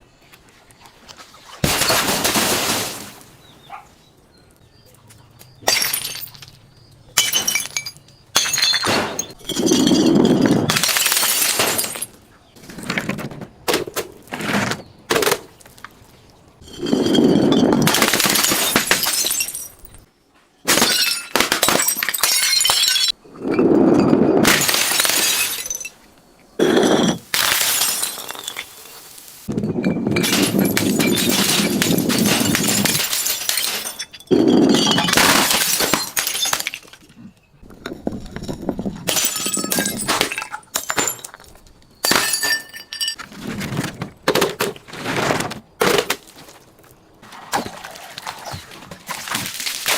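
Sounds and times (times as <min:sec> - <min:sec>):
glass bottles shattering: 0:01.6 - 0:03.2, 0:05.6 - 0:12.2, 0:16.6 - 0:20.1, 0:20.7 - 0:23.2, 0:23.9 - 0:26.0, 0:26.6 - 0:28.9, 0:29.5 - 0:37.1, 0:38.3 - 0:43.3.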